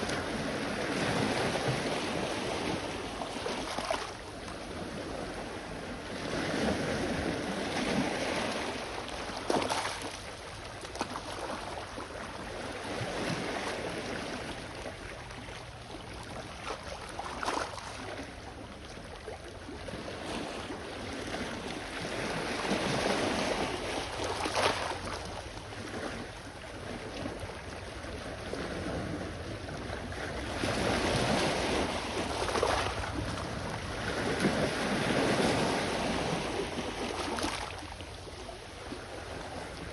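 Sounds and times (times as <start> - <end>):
wind rumble on microphone: 0.0 - 9.6, 17.9 - 39.9
sea waves washing onto shore: 0.0 - 15.4, 20.0 - 39.9
wave splash: 0.0 - 18.4, 19.1 - 39.9.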